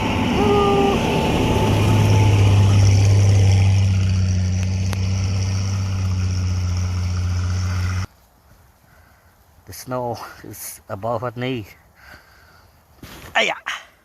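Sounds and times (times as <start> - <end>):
truck engine running: 0.0 - 8.1.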